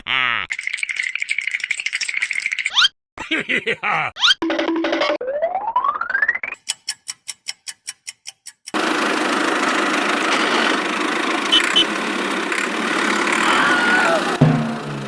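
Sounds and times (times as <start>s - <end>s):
small engine cranking and running: 8.7s - 14.4s
short high beeps: 11.5s - 11.9s.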